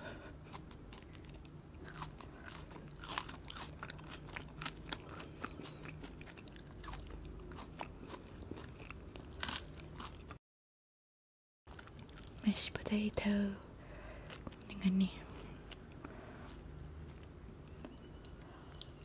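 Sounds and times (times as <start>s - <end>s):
chewing crunchy fries: 0.2s - 10.4s, 11.7s - 19.0s.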